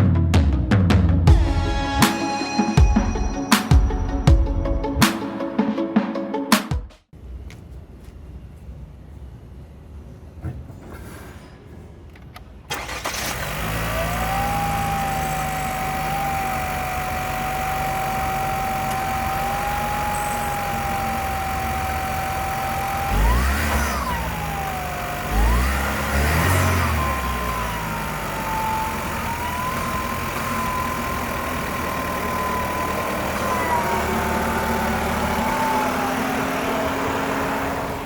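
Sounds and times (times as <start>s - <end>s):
car engine starting and idling: 12.3s - 38.0s
engine revving: 12.7s - 38.0s.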